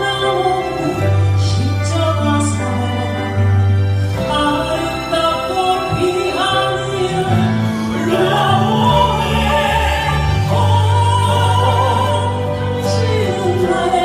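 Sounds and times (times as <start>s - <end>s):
instrumental accompaniment: 0.0s - 14.0s
solo singer with vibrato: 0.0s - 14.0s
steady bass: 0.0s - 14.0s.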